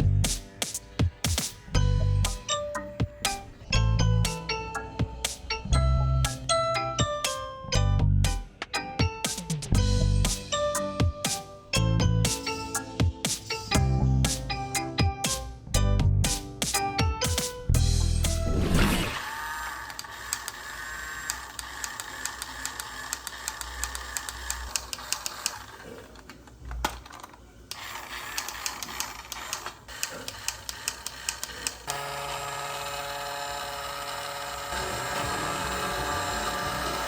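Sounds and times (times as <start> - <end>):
plastic toy parts rattling: 21.4 - 31.8
steady multi-pitched hum: 31.8 - 37.0.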